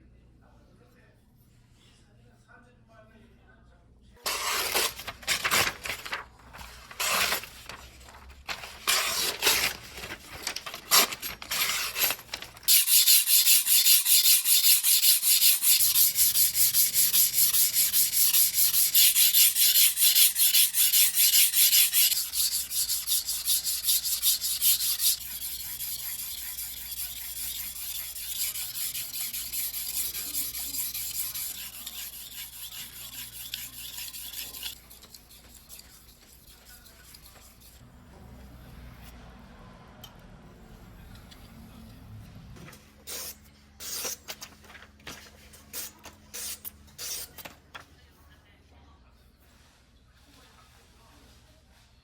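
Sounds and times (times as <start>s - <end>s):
knife scraping on whetstone: 4.3s - 5.5s, 7.0s - 7.5s, 8.8s - 9.8s, 10.8s - 37.8s, 45.8s - 47.4s.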